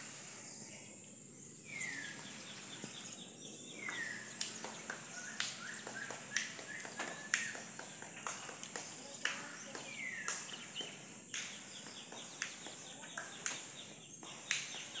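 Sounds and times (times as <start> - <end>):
birds chirping: 0.0 - 15.0
high-pitched hiss: 0.0 - 15.0.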